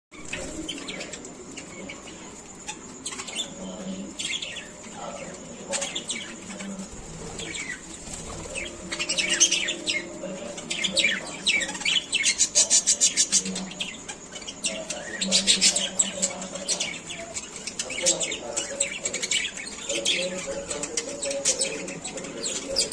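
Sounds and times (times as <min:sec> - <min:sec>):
lovebirds chirping: 0:00.1 - 0:22.9
wings flapping: 0:06.4 - 0:10.6.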